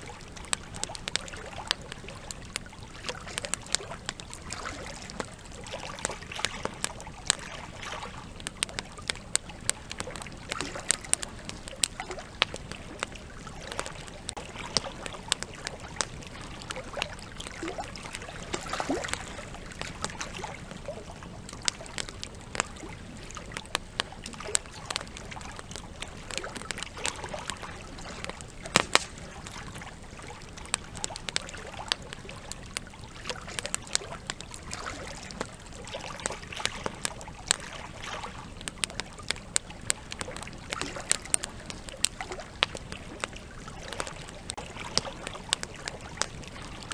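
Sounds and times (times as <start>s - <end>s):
campfire crackling and popping: 0.0s - 46.9s
river flowing: 12.1s - 21.2s.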